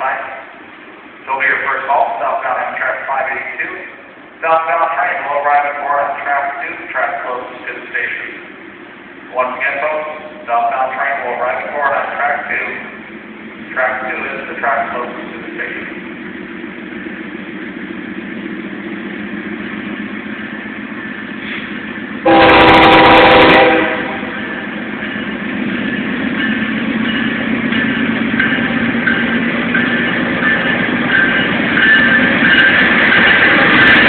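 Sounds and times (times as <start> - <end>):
train rumble: 0.0 - 34.0
wheels squealing on rails: 14.3 - 34.0
locomotive horn blast: 22.2 - 24.5.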